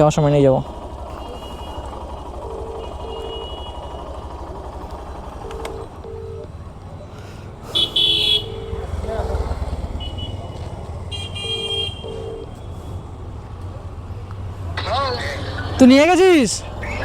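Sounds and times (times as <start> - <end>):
phone ringback tone: 2.4 - 3.6, 5.4 - 6.5.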